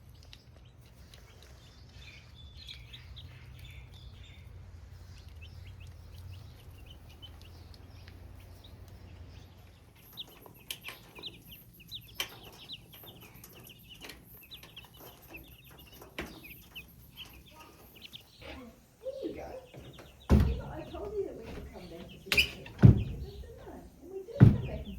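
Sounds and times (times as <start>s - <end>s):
chicks cheeping: 0.0s - 24.9s
taps of scratching in shavings: 19.7s - 24.9s.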